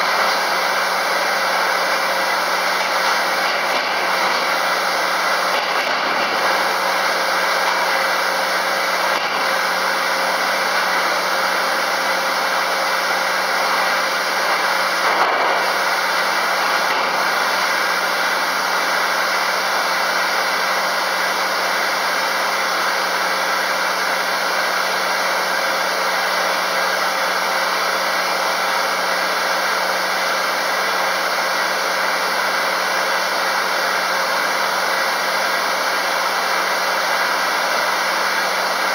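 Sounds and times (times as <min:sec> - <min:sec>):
circular saw running: 0:00.0 - 0:38.9.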